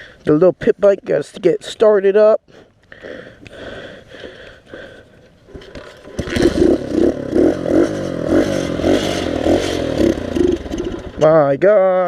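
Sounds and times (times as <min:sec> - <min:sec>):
small motorbike engine starting: 0:05.6 - 0:11.3.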